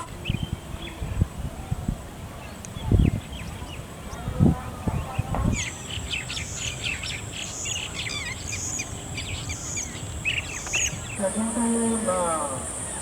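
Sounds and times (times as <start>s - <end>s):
bird chirping: 5.0s - 13.0s.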